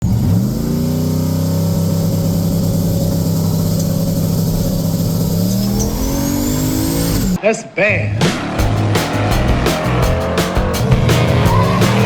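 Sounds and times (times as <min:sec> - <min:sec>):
truck engine running: 0:00.0 - 0:07.4, 0:08.2 - 0:12.0.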